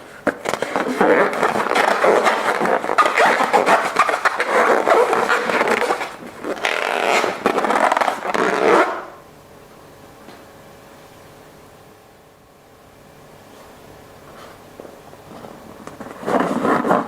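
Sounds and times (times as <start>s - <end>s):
scraping: 0.3s - 9.0s.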